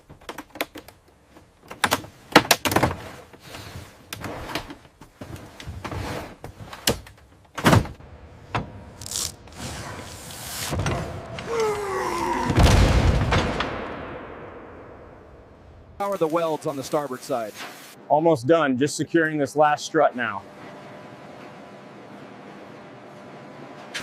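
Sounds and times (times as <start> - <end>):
irregular clicks and knocks: 0.0 - 3.0.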